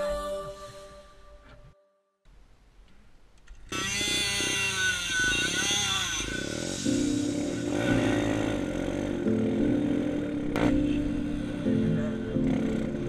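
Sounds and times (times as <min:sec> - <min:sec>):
dirt bike engine revving: 0:03.7 - 0:11.6.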